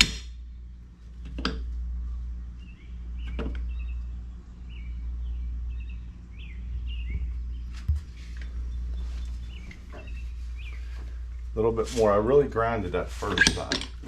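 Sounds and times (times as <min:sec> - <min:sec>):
birds chirping: 0:00.5 - 0:13.7.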